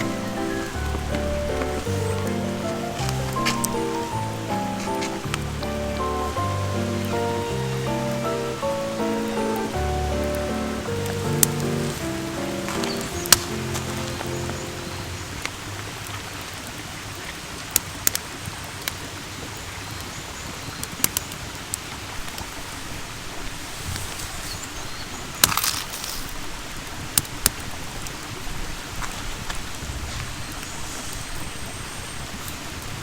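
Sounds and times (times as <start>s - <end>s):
campfire crackling and popping: 0.0s - 15.8s.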